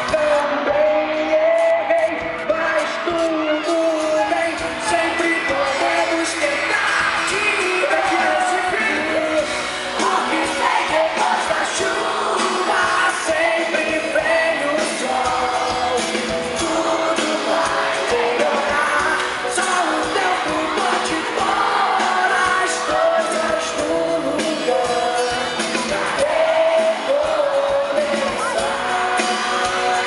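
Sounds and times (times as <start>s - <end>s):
drums keeping a steady beat: 0.0s - 30.0s
lead vocal singing: 0.0s - 30.0s
pop-rock band playing: 0.0s - 30.0s.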